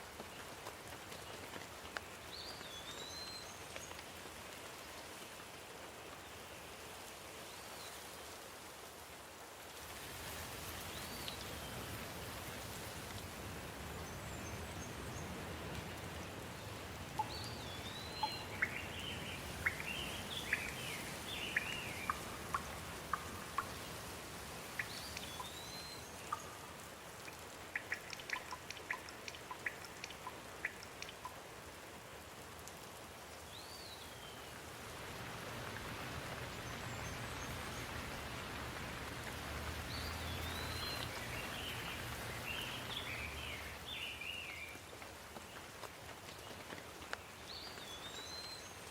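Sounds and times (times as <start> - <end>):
steady rain falling: 0.0 - 48.9
birds chirping: 17.2 - 23.9, 24.7 - 26.7, 27.7 - 31.3, 39.8 - 44.6.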